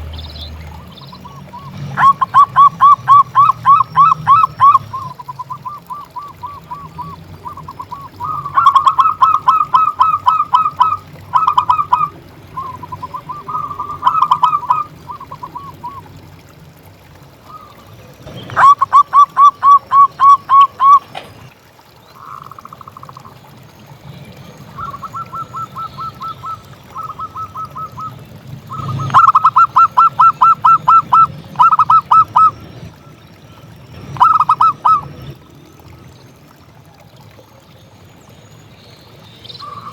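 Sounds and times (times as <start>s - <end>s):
dove cooing: 1.2s - 16.1s, 18.5s - 21.2s, 24.7s - 32.6s, 34.1s - 35.1s.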